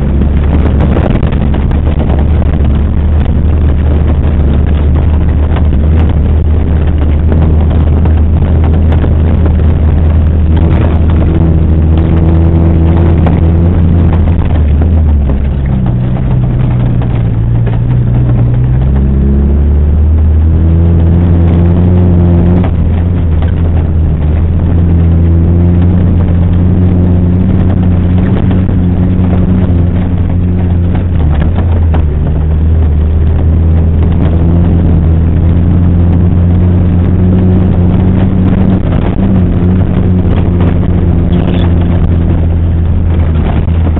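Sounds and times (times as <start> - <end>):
knocks and rattles from bumps: 0.0 - 19.5
off-road vehicle engine running: 0.0 - 43.9.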